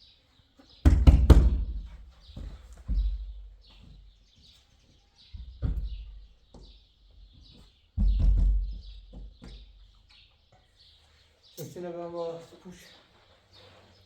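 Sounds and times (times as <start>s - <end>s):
small birds chirping: 0.0s - 1.3s, 2.1s - 14.0s
dull heavy thumps: 5.4s - 6.2s, 8.0s - 9.7s.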